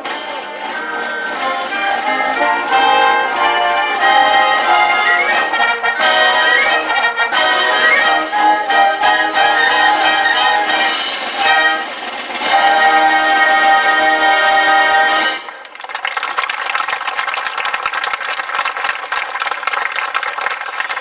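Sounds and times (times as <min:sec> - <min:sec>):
live brass ensemble music: 0:00.0 - 0:15.7.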